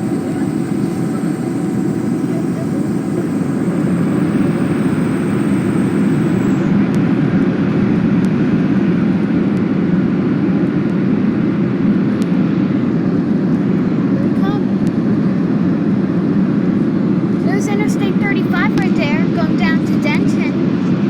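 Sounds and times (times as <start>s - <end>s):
faint high whine: 0.0s - 8.0s
aircraft cabin engine roar: 0.0s - 21.0s.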